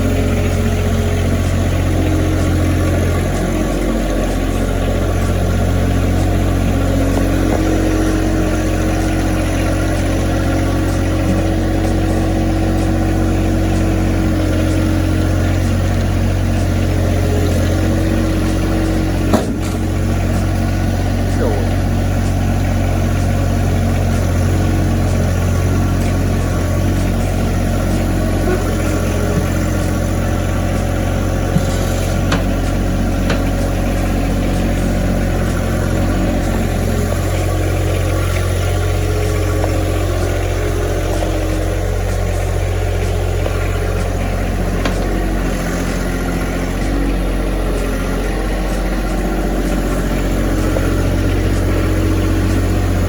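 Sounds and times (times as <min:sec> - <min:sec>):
tractor engine running: 0:00.0 - 0:53.0.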